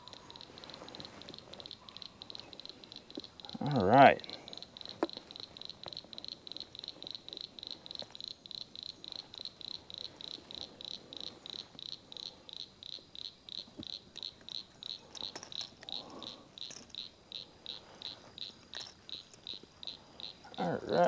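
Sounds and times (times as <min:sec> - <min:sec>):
faint clicks: 0:00.0 - 0:20.6
high-pitched insect or frog chirping: 0:00.0 - 0:21.0.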